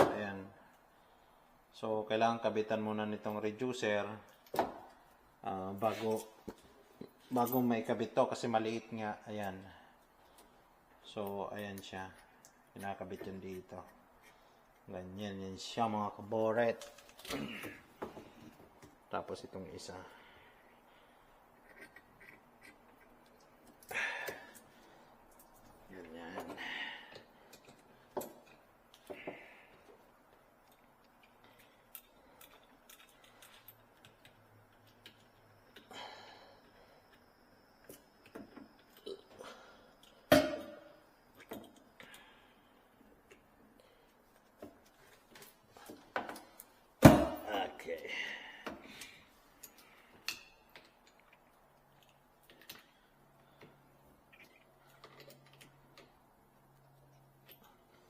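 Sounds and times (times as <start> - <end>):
faint clicks of tools handled: 29.8 - 35.9.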